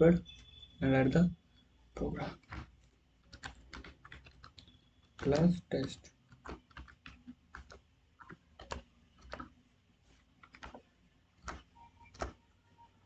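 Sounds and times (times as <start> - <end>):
keyboard keys tapping: 2.0 - 9.6, 10.4 - 13.0.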